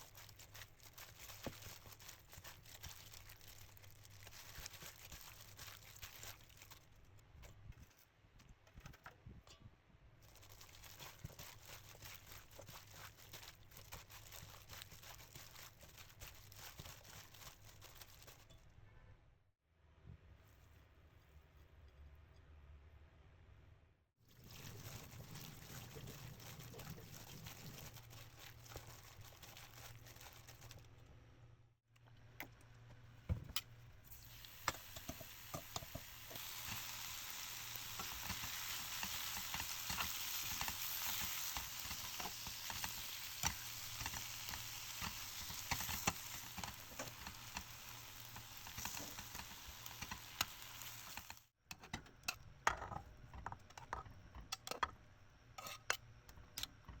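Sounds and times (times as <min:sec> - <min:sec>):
meat sizzling: 0:24.3 - 0:30.7, 0:34.1 - 0:51.5
utensil clicking in a pot: 0:34.5 - 0:55.0.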